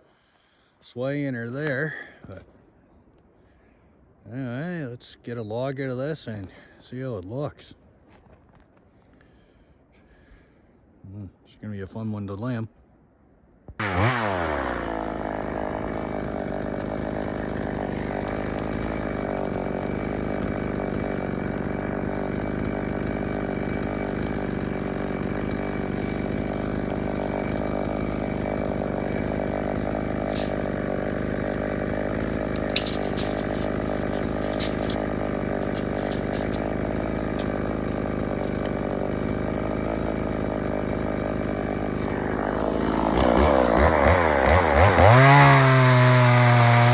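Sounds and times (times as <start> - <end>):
chainsaw cutting a log: 13.8 - 46.9.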